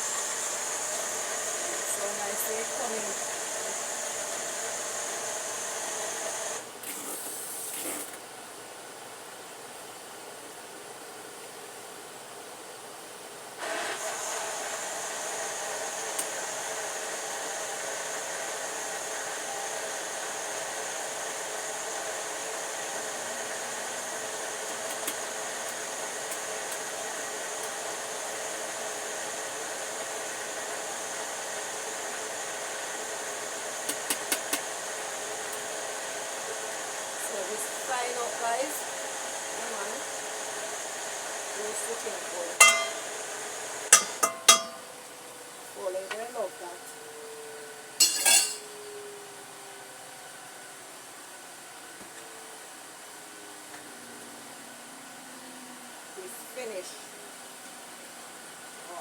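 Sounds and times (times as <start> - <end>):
small motor whirring: 0.0 - 8.2.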